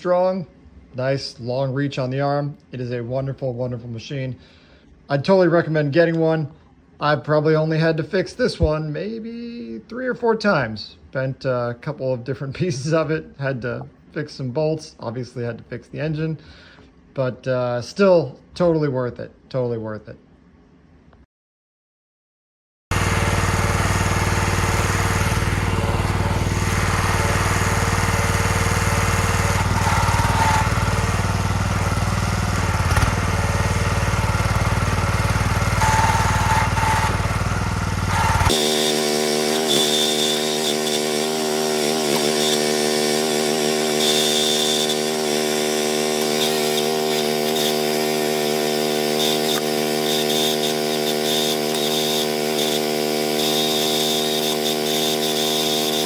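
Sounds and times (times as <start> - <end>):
small gas engine running: 22.9 - 56.0.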